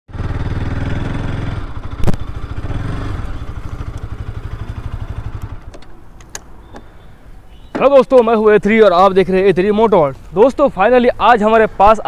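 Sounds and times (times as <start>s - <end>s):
motorcycle engine running: 0.1s - 5.8s.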